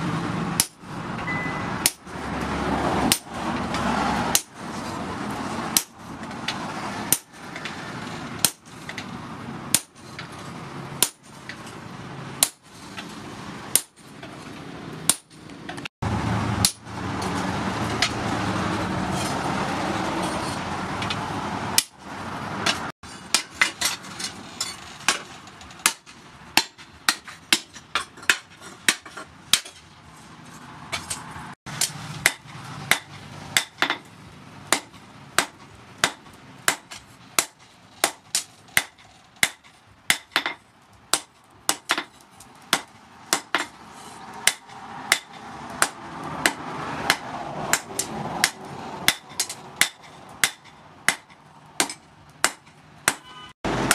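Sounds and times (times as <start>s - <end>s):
hammer striking hot chisel: 0.6s - 2.0s, 4.3s - 4.6s, 5.7s - 6.0s, 7.1s - 7.7s, 8.4s - 9.0s, 11.0s - 11.3s, 12.4s - 12.6s, 13.7s - 14.0s, 15.1s - 15.8s, 25.1s - 29.8s, 30.9s - 34.1s, 34.7s - 43.8s, 44.4s - 53.9s.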